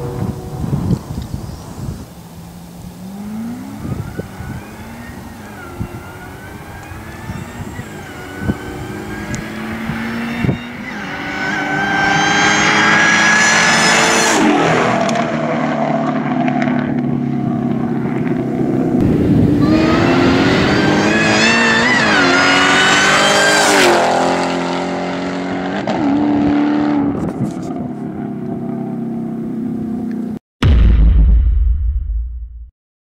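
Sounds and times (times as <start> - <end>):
supercharger whine: 0.0 - 25.2
car engine at full throttle: 0.0 - 30.4.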